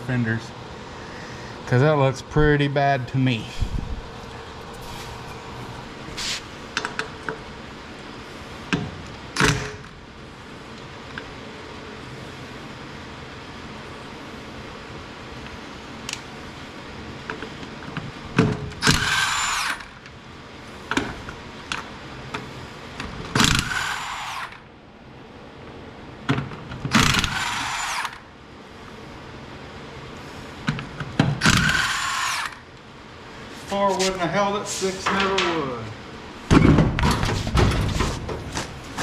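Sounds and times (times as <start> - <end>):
impact wrench spinning: 18.8 - 19.8, 23.4 - 24.6, 26.9 - 28.2, 31.4 - 32.6.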